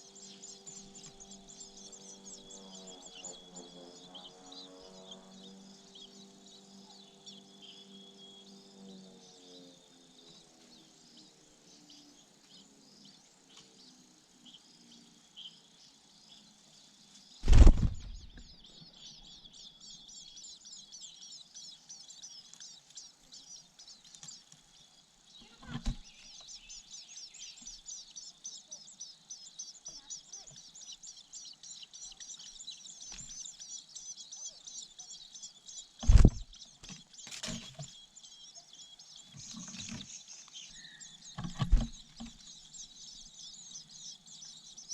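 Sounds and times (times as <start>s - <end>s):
nestlings begging chirps: 0.0s - 44.9s
loud thump: 17.4s - 18.4s.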